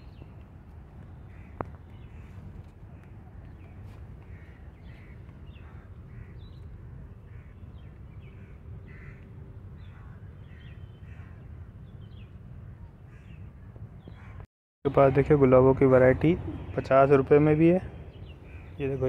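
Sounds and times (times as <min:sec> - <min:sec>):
birds calling: 0:01.0 - 0:19.0.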